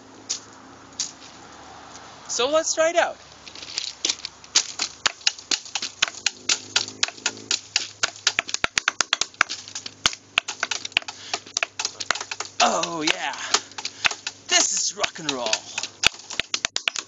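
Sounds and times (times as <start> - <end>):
drumming on rocks and wood: 4.0 - 17.0.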